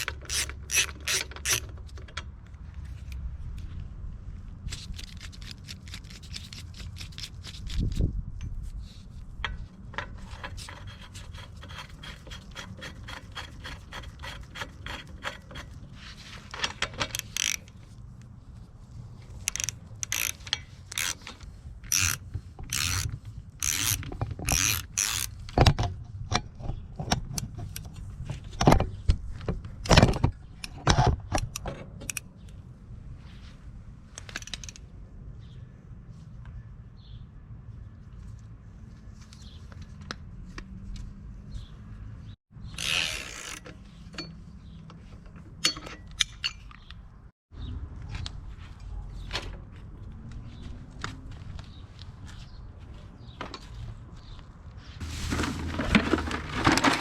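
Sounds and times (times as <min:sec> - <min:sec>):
tools clicking and scraping: 0:00.0 - 0:03.2, 0:04.6 - 0:18.4, 0:19.1 - 0:32.6, 0:34.1 - 0:34.9, 0:42.6 - 0:47.1
loud knocks and scrapes: 0:55.0 - 0:57.0.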